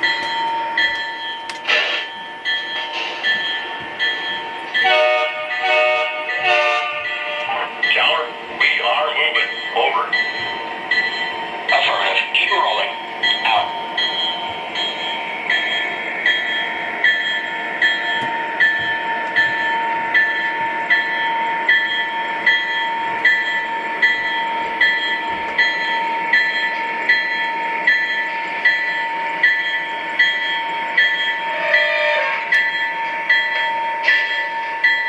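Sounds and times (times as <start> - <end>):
model diesel locomotive engine drone: 0.0 - 35.0
ringing beat: 9.4 - 11.8.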